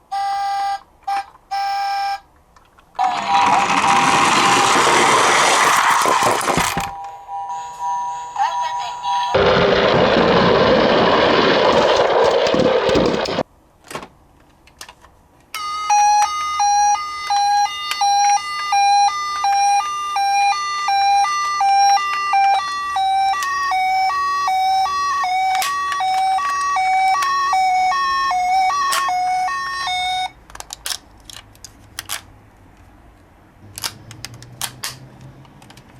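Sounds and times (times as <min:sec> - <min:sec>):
loud rushing noise: 0:09.4 - 0:13.4
two-tone emergency siren: 0:15.6 - 0:30.4.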